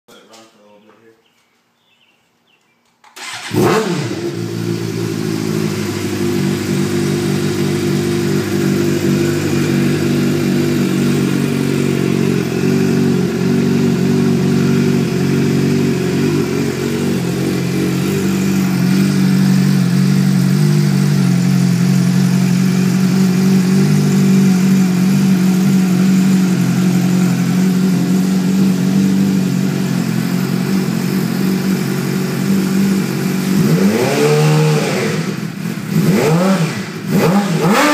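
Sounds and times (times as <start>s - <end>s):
motorcycle engine idling: 3.2s - 37.9s.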